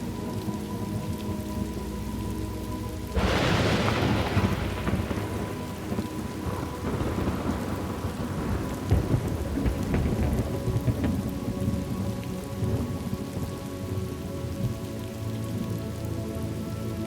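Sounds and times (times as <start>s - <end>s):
steady rain: 0.0s - 17.0s
low thunder rumbling: 2.3s - 13.6s
loud thunderclap: 3.2s - 11.8s.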